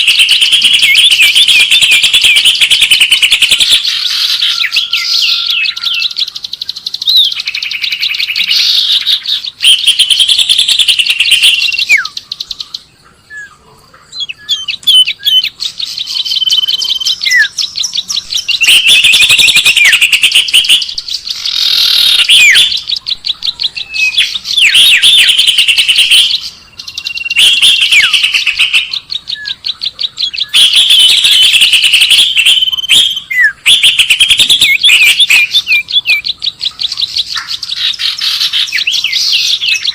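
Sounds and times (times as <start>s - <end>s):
small birds chirping and trilling: 0.0s - 39.9s.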